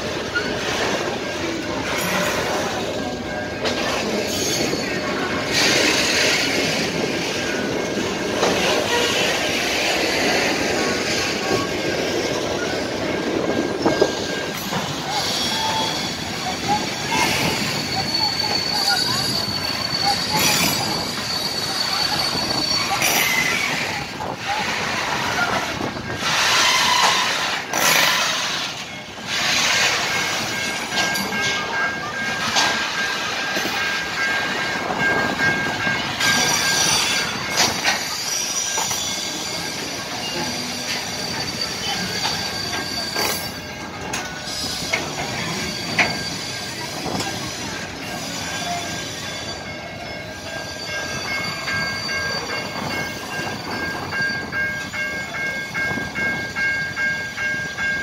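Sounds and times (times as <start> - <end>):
freight train rumbling past: 0.0 - 58.0
high-pitched wheel squeal: 13.8 - 28.5, 36.2 - 43.8, 44.4 - 54.8.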